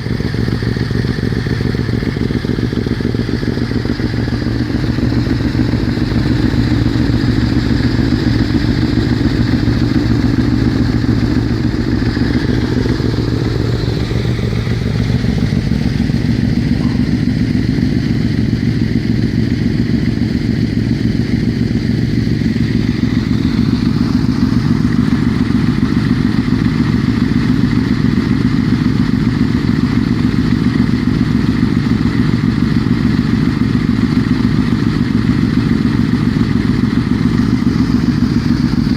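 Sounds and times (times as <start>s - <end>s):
motorbike engine running: 0.0s - 38.9s.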